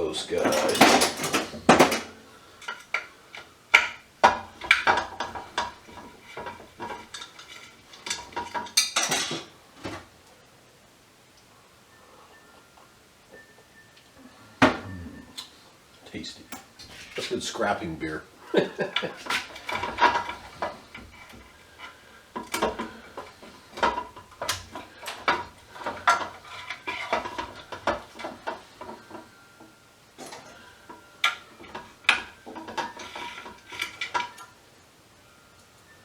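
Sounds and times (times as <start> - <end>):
metal tools clinking on workbench: 0.2 - 3.0, 3.8 - 9.5.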